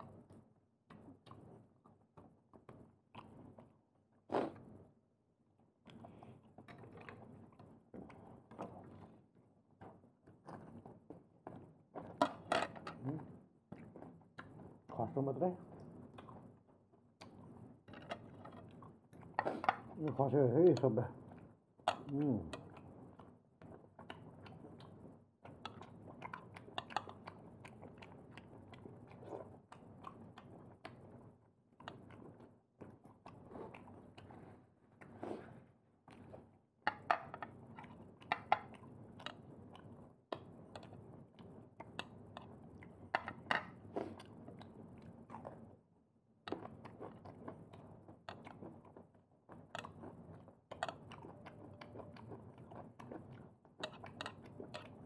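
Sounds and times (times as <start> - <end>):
person chewing seafood: 46.5 - 55.0.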